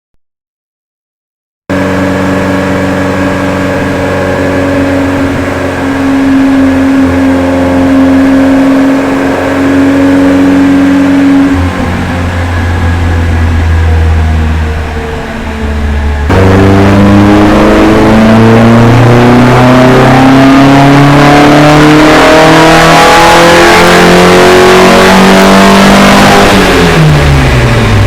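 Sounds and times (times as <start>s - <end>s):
car engine running: 1.7s - 28.0s.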